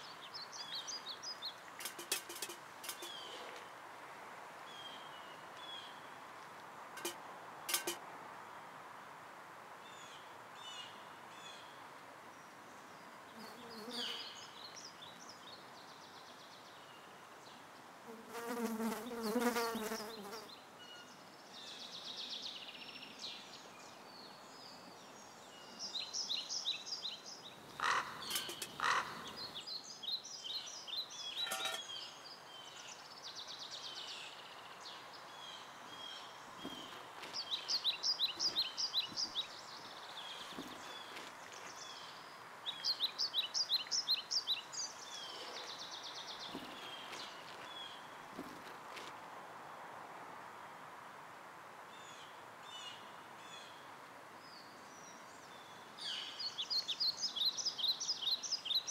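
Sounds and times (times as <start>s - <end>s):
small birds chirping: 0.0s - 3.7s, 9.9s - 17.7s, 18.3s - 48.6s, 54.5s - 58.9s.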